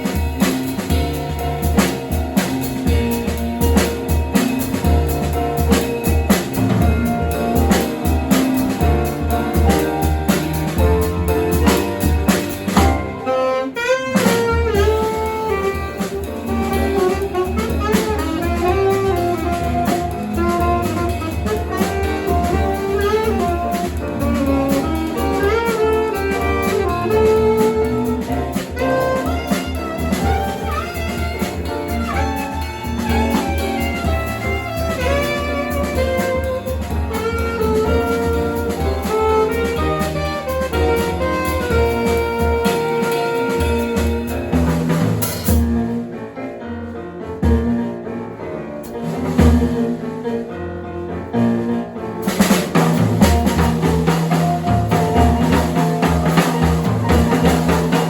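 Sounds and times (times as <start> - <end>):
alto saxophone melody: 0.0 - 46.0, 48.8 - 58.0
drum kit: 0.0 - 58.0
piano: 0.0 - 58.0.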